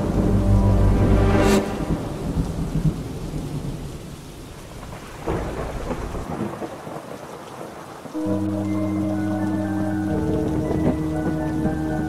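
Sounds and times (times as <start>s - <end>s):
low rolling thunder: 0.0s - 4.1s, 4.7s - 7.3s, 8.1s - 12.0s
steady rain: 0.0s - 12.0s
sharp crack of thunder: 4.8s - 9.0s, 10.2s - 12.0s.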